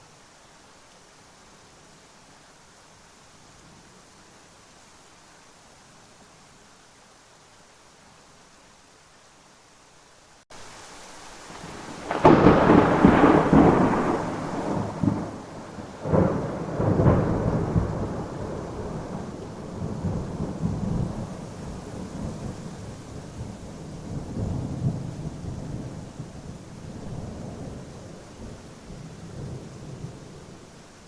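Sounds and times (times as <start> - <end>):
steady rain: 0.0 - 31.0
thunder clap and rumble: 11.6 - 21.4.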